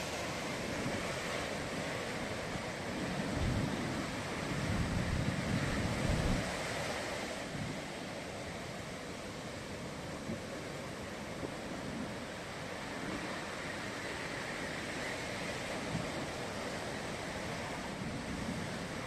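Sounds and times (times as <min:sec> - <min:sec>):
waves breaking: 0:00.0 - 0:19.0
wind on microphone: 0:02.9 - 0:07.8.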